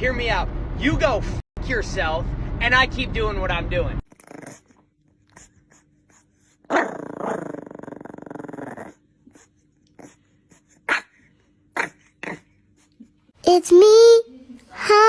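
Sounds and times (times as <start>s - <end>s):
dog growling: 4.1s - 11.1s, 11.7s - 12.5s
dog barking: 10.9s - 11.2s.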